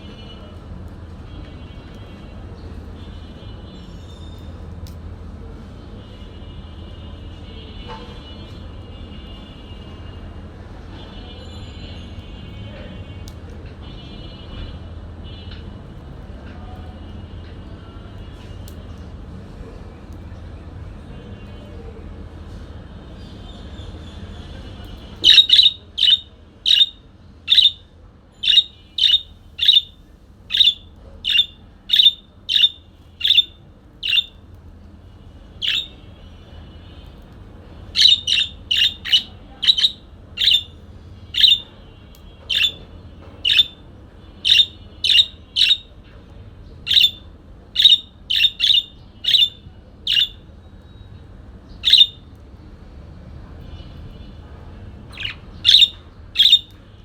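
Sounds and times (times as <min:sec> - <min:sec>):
parakeet chirping: 0:25.2 - 0:27.8, 0:28.4 - 0:34.4, 0:35.6 - 0:36.1, 0:37.8 - 0:41.7, 0:42.5 - 0:43.8, 0:44.4 - 0:46.0, 0:46.8 - 0:51.0, 0:51.7 - 0:52.3, 0:55.1 - 0:56.8.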